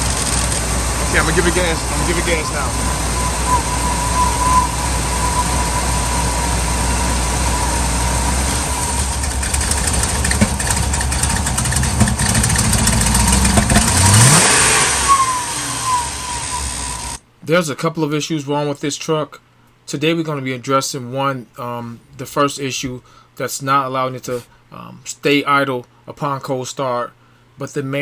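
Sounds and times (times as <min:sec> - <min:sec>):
engine running rough and revving: 0:00.0 - 0:17.2.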